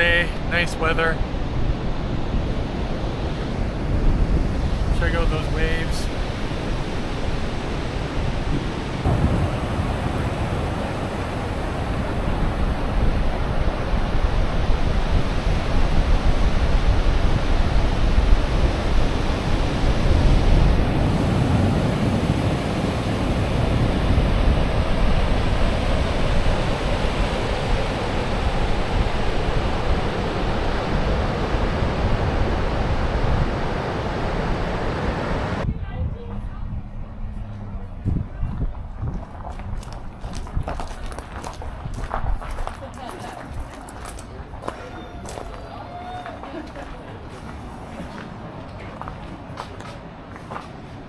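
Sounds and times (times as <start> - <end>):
ocean surf breaking: 0.0 - 35.6
wind rumbling on microphone: 0.0 - 51.0.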